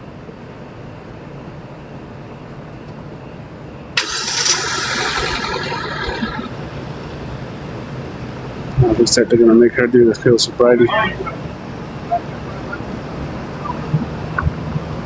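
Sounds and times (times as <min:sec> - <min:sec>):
vehicle engine starting: 0:04.0 - 0:07.2
traffic rumble: 0:04.0 - 0:08.6.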